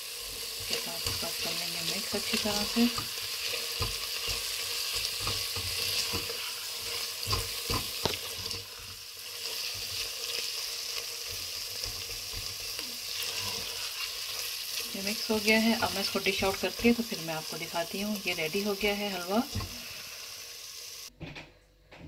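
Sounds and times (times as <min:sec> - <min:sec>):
carrots sizzling in ghee: 0:00.0 - 0:21.1
spoon stirring and scraping: 0:00.4 - 0:17.0
spoon knocking on pan: 0:02.9 - 0:06.4, 0:07.2 - 0:08.3.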